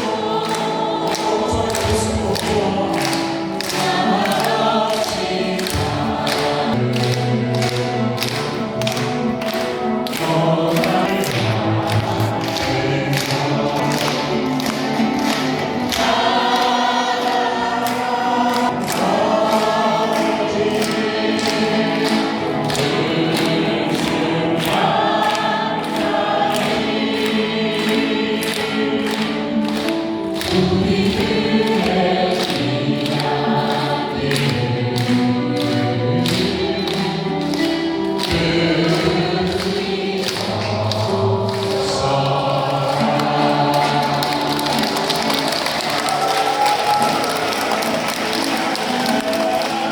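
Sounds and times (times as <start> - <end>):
rhythmic musical accompaniment: 0.0 - 49.9
voices singing in harmony: 0.0 - 49.9.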